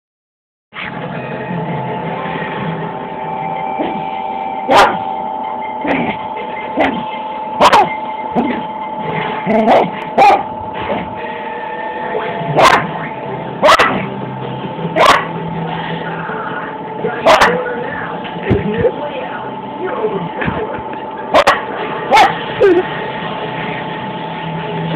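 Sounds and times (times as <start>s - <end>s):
background hum: 0.9s - 24.9s
dog barking: 4.7s - 5.1s, 6.8s - 8.7s, 9.5s - 11.1s, 12.5s - 13.0s, 13.6s - 14.1s, 15.0s - 15.4s, 17.2s - 17.7s, 21.3s - 22.8s.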